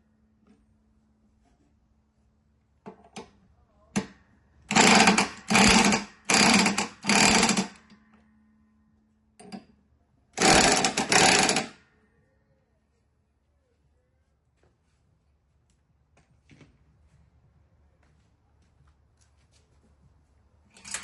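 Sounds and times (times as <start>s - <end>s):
power tool running in bursts: 4.7s - 7.8s, 10.4s - 11.7s.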